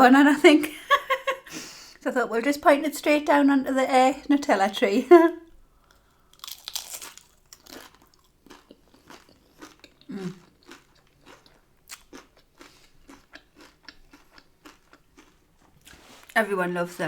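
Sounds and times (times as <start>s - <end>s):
person chewing crunchy food: 5.8s - 16.4s.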